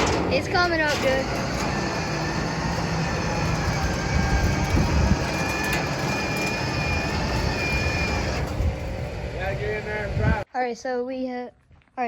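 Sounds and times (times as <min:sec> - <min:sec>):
mechanical rumble and rattle: 0:00.0 - 0:10.5.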